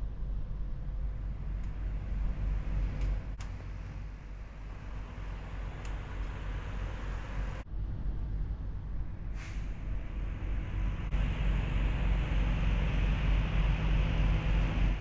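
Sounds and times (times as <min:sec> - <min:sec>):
car rumbling on highway: 0:00.2 - 0:07.7, 0:08.4 - 0:15.0
brief high hiss: 0:09.4 - 0:09.8.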